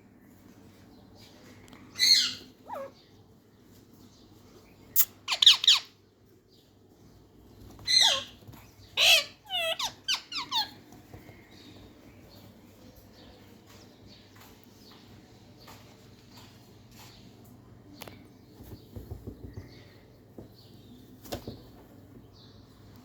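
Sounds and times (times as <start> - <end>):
parrot squawking: 2.0 - 2.9, 5.0 - 5.9, 7.9 - 8.4, 9.0 - 10.8.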